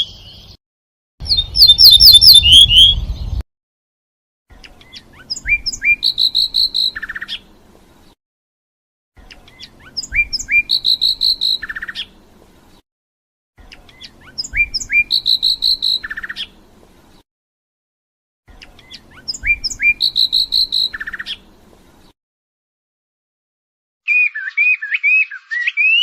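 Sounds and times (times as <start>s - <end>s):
goldfinch twittering song: 1.2s - 3.3s, 4.6s - 7.6s, 9.2s - 12.2s, 13.6s - 16.7s, 18.5s - 21.6s.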